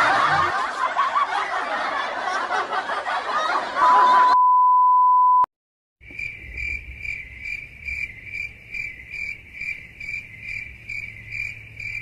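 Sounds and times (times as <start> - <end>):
crickets chirping: 6.0 - 12.0.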